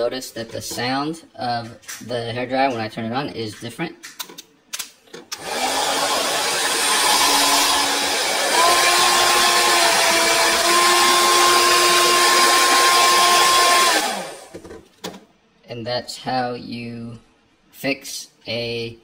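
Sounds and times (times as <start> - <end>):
hair dryer running: 5.4 - 14.6.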